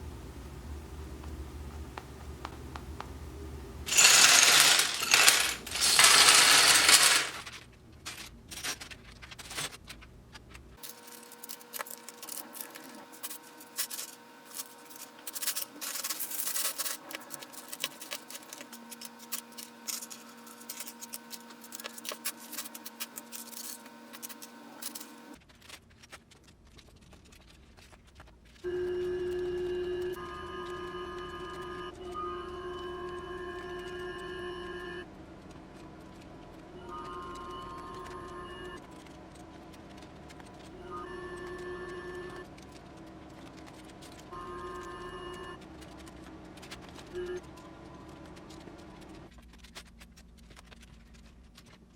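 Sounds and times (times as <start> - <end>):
plastic bricks spilling: 3.9 - 7.6
plastic pieces clicking together: 3.9 - 10.0.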